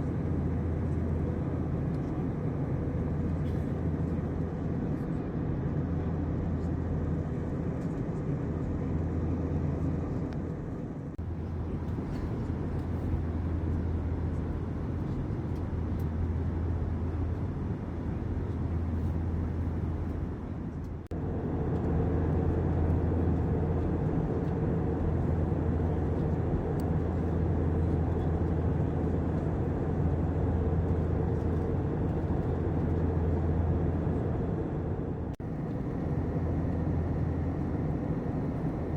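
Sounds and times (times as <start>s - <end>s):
airplane cabin engine drone: 0.0s - 38.9s.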